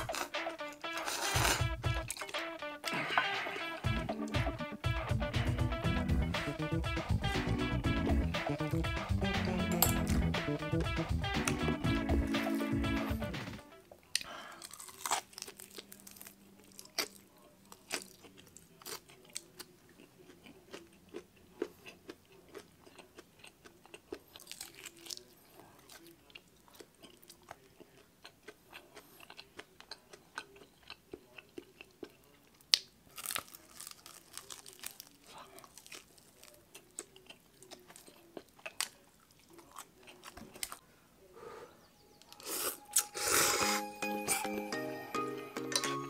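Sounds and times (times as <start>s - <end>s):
crunchy bites and chewing: 14.2s - 40.8s.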